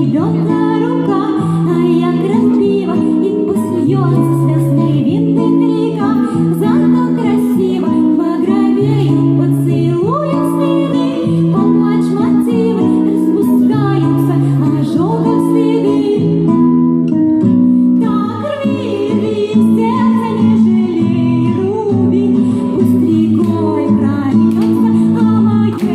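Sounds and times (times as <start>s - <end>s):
woman singing: 0.0s - 16.9s, 17.7s - 25.9s
guitar accompaniment: 0.0s - 25.9s.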